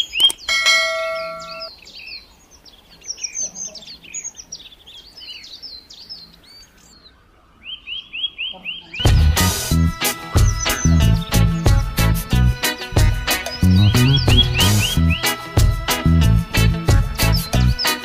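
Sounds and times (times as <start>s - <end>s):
small birds chirping: 0.0s - 18.0s
bell-like chime: 0.5s - 1.7s.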